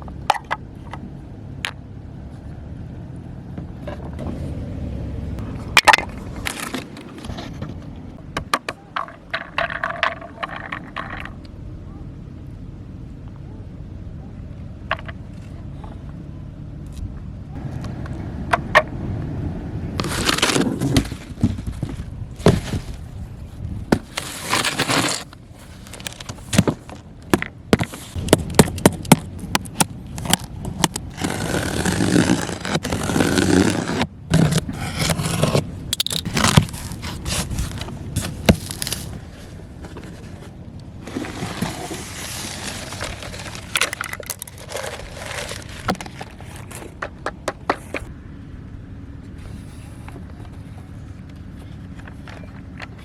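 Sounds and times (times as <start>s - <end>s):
toy truck scraping: 5.4s - 11.4s, 20.0s - 21.8s, 24.0s - 27.1s, 30.1s - 48.1s
rustling: 20.0s - 48.1s.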